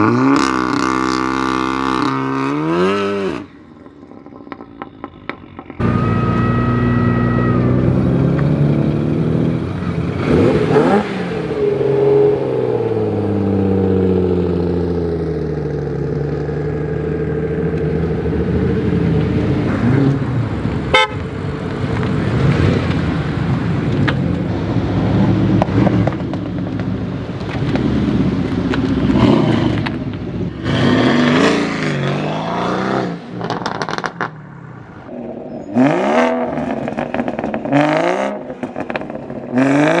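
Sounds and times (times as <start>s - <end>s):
car engines revving: 0.0s - 40.0s
sharp crack: 21.6s - 32.2s.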